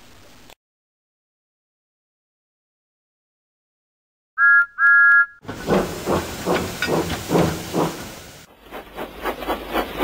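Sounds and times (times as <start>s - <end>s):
steam whistle toots: 4.4s - 5.4s
hissing steam: 5.4s - 10.0s
steam locomotive chuffing: 5.4s - 10.0s.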